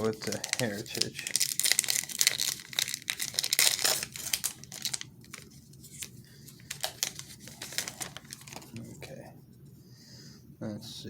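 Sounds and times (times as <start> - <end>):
wrapper tearing and crinkling: 0.0 - 8.8.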